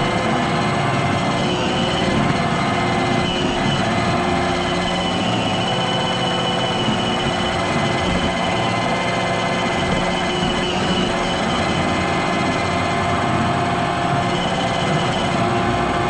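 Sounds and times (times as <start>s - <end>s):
robot vacuum whirring: 0.0s - 12.6s
thin high whine: 0.0s - 12.7s.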